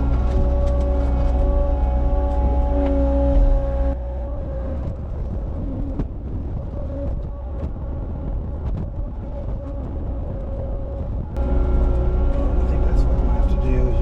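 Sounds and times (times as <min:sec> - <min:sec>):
diesel engine running: 0:00.0 - 0:04.0, 0:11.4 - 0:14.0.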